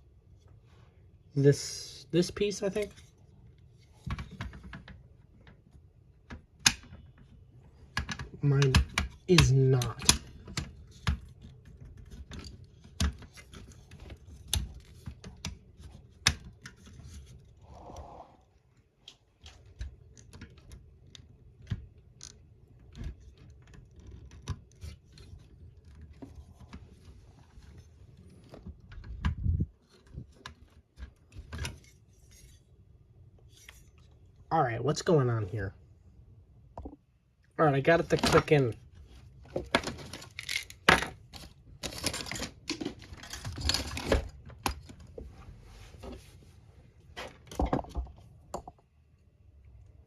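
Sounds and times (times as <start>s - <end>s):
plastic parts clicking and scraping: 2.4s - 17.7s, 18.6s - 32.8s, 37.9s - 45.3s.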